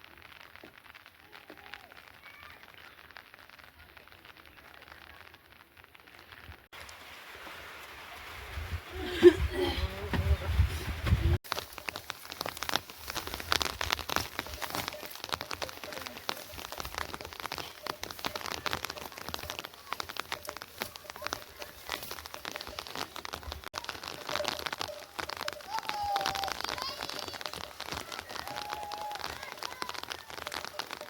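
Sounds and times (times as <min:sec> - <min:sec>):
raindrops hitting a surface: 0:00.0 - 0:31.0.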